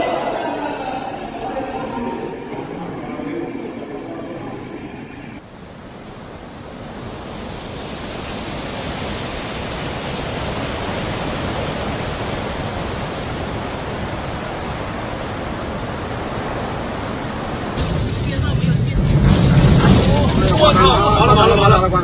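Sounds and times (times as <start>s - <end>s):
storm wind and rain roar: 0.0s - 22.0s.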